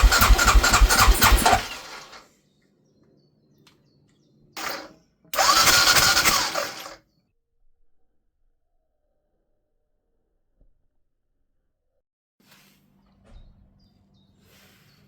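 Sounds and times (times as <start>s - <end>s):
motorcycle engine starting attempts: 0.0s - 2.2s, 4.6s - 7.0s.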